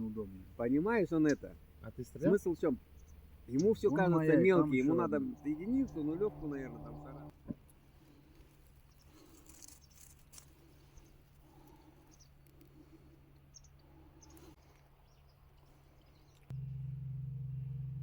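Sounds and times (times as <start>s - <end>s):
steady low hum: 0.0s - 8.2s, 16.5s - 18.0s
loud low drone: 3.8s - 7.3s, 16.5s - 18.0s.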